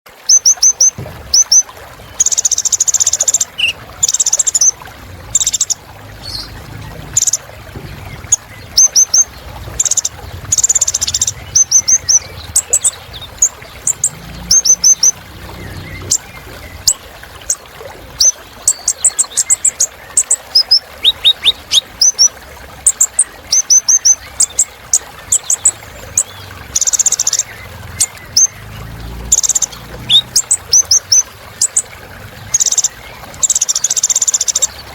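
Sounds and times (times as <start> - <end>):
sunbird high-pitched song: 0.2 - 6.6, 8.1 - 17.0, 18.2 - 22.3, 22.9 - 24.7, 29.3 - 31.8.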